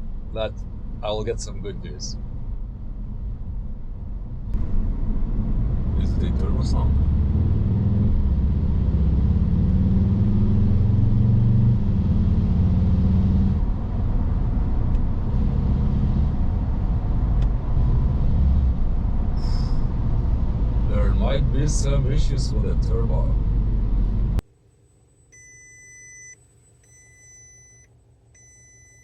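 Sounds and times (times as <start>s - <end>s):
car engine under load: 0.0s - 24.4s
faint steady whine: 24.4s - 29.0s.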